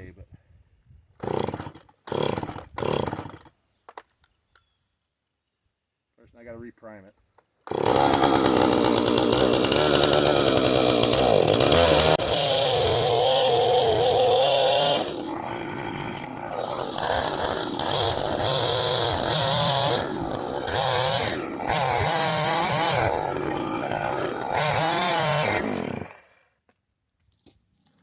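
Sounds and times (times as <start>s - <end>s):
chainsaw revving: 1.2s - 3.5s, 7.6s - 26.4s.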